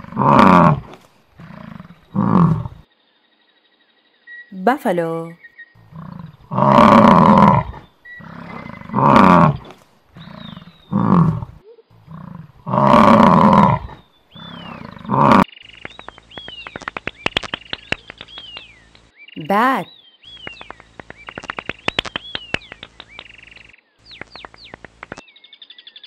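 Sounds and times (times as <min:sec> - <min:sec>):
bats squeaking and clicking: 0:15.6 - 0:19.6, 0:20.3 - 0:25.2.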